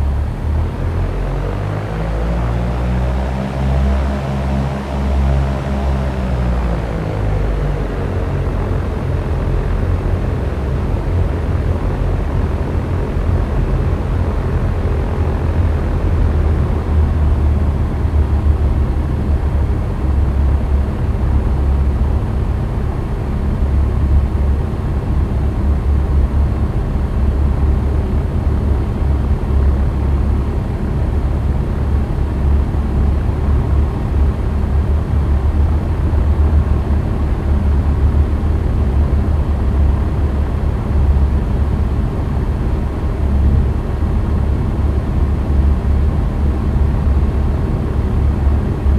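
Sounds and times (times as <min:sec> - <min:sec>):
propeller plane engine drone: 0:00.0 - 0:48.9.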